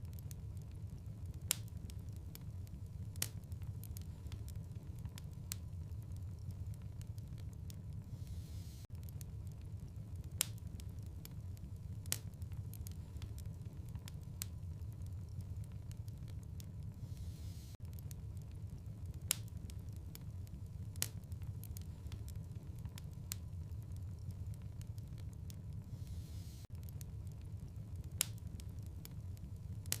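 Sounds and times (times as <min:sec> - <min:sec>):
steady low rumble: 0:00.0 - 0:30.0
wood fire crackling: 0:00.0 - 0:30.0
sharp pops and clicks: 0:17.8 - 0:25.5.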